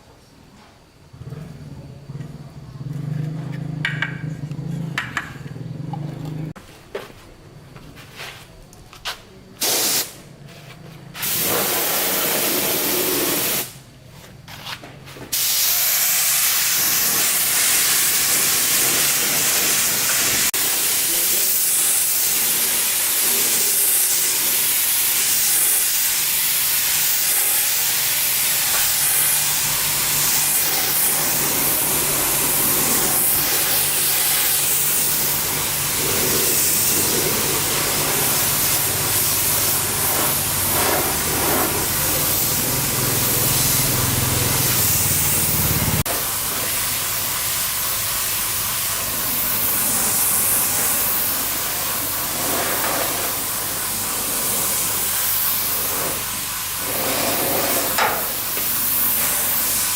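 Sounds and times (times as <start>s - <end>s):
hissing spray: 9.4s - 13.9s, 14.5s - 59.9s.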